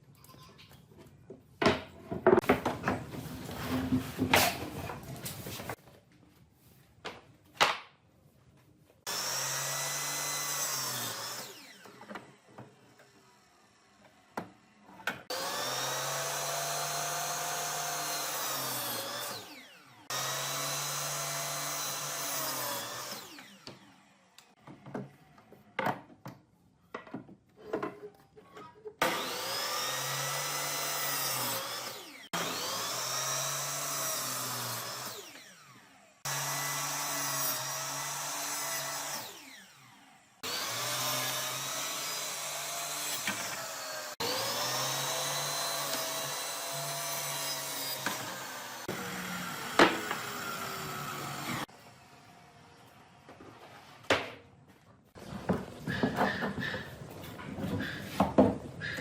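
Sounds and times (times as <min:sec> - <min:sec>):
power tool running on wood: 0:09.1 - 0:14.3, 0:15.3 - 0:24.4, 0:29.0 - 0:52.5.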